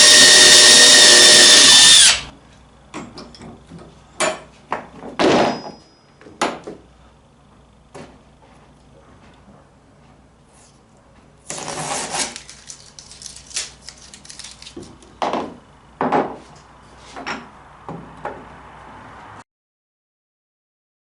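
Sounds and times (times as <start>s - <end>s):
rasping scrape: 11.5s - 12.7s
scrapes and knocks of wood and metal: 14.7s - 18.6s.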